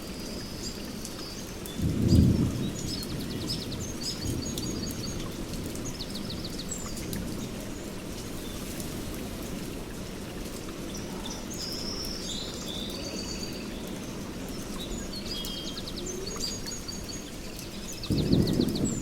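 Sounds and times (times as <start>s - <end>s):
songbirds chirping and trilling: 0.4s - 8.8s, 9.8s - 19.0s
thunder rumbling: 1.8s - 6.5s, 18.0s - 19.0s.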